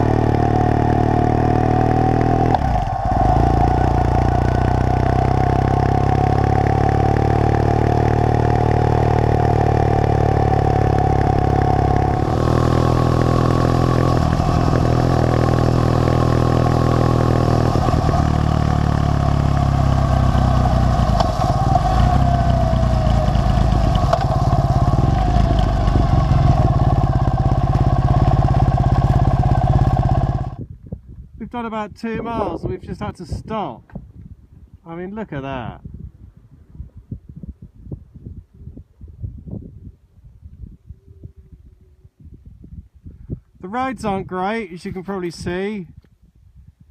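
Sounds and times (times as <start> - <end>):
motorcycle engine running: 0.0 - 30.7
wind rushing past: 2.3 - 5.3, 9.5 - 31.4.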